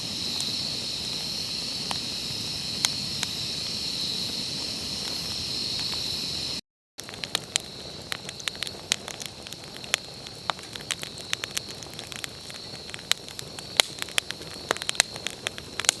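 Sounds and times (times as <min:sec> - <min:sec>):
high-pitched hiss: 0:00.0 - 0:06.6
campfire crackling: 0:00.0 - 0:16.0.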